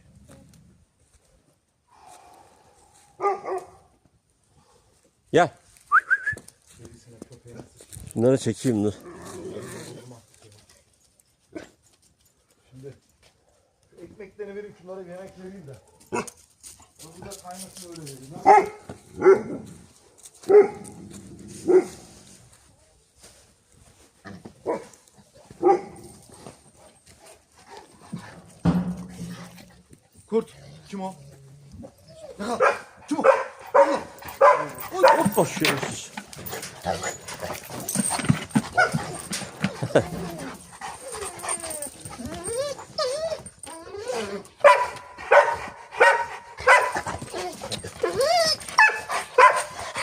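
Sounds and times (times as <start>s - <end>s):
dog barking: 3.2s - 3.8s, 18.4s - 19.6s, 20.5s - 20.8s, 21.7s - 22.0s, 24.6s - 24.9s, 25.6s - 26.0s, 32.6s - 35.4s, 44.6s - 47.1s, 48.8s - 49.8s
dogs whining and yipping: 31.8s - 32.6s, 36.3s - 45.0s, 46.1s - 50.0s.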